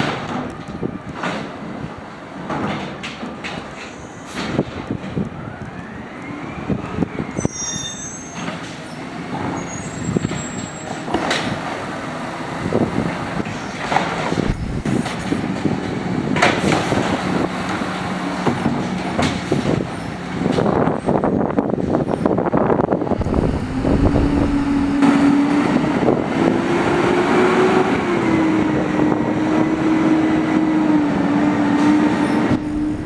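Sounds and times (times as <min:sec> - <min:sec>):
high metallic squeal: 0:07.4 - 0:09.0
garbage truck running hum: 0:08.4 - 0:33.0
hydraulic lifting arm whine: 0:12.6 - 0:16.0, 0:22.9 - 0:26.5, 0:31.8 - 0:33.0
clunks and bangs: 0:13.9 - 0:15.8.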